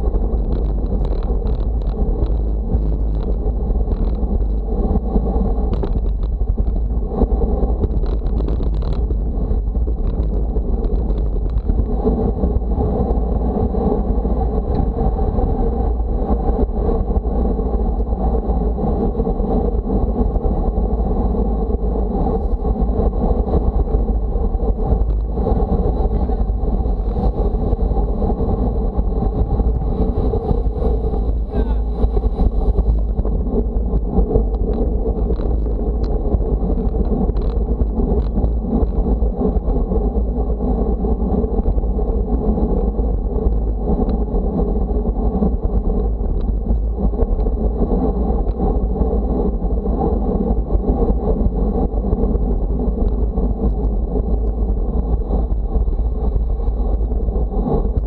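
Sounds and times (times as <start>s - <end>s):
road noise: 0.0s - 58.0s
wind buffeting microphone: 0.0s - 58.0s.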